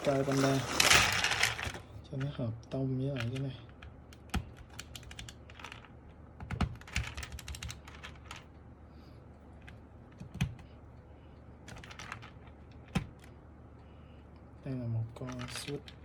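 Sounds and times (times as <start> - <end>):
mechanical keyboard typing: 3.1 - 8.4, 9.6 - 10.6.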